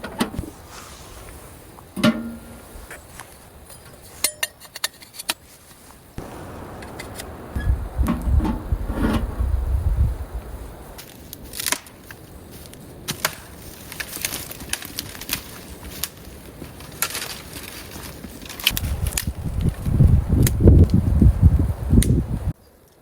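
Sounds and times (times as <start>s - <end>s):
low rumble of handling: 6.2s - 11.0s.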